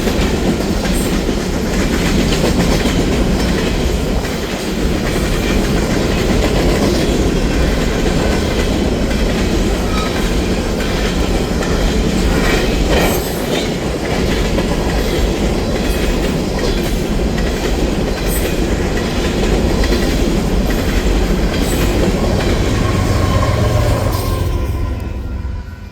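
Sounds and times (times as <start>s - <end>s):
freight train wheels rumbling on rails: 0.0s - 25.9s.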